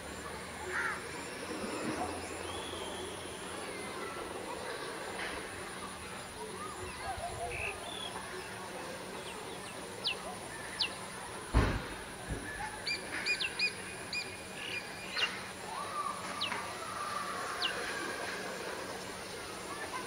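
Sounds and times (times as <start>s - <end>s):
dull thump: 11.5s - 12.0s
bird chirps: 12.8s - 15.4s.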